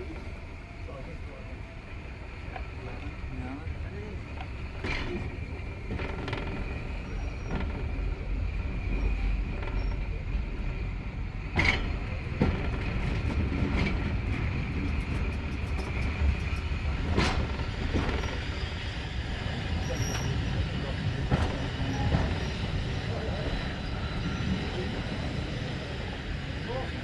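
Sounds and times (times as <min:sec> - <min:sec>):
train rumbling on rails: 0:00.0 - 0:27.0
wheels squealing: 0:17.6 - 0:25.0.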